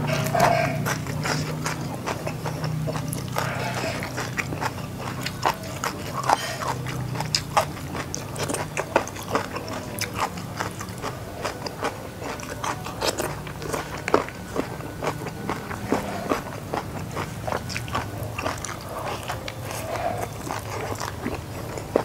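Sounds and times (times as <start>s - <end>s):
crisp chewing crunches: 0.0s - 22.0s
steady low hum: 0.0s - 22.0s.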